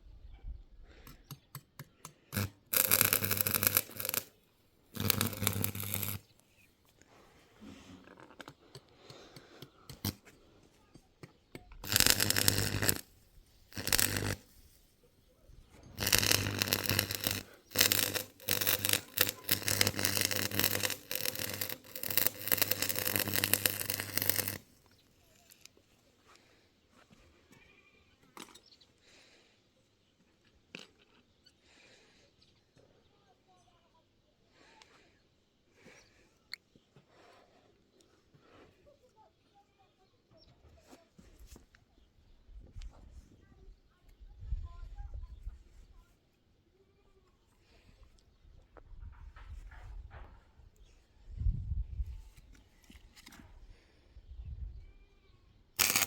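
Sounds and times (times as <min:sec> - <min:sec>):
power tool running: 0:02.4 - 0:04.3, 0:05.0 - 0:06.2, 0:11.8 - 0:13.0, 0:13.7 - 0:14.4, 0:16.0 - 0:24.6, 0:55.8 - 0:56.0.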